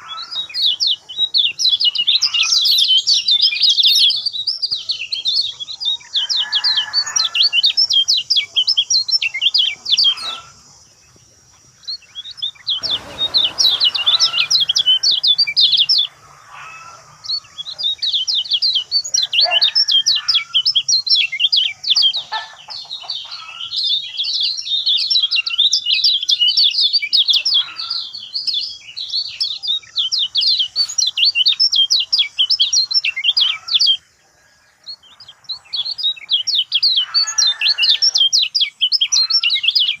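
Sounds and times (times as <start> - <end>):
bird chattering song: 0.0 - 40.0.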